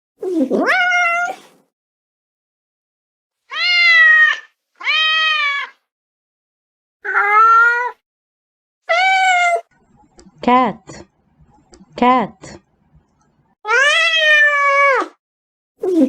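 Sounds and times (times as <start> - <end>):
cat meowing: 3.5 - 5.8, 7.0 - 8.0, 13.7 - 15.2.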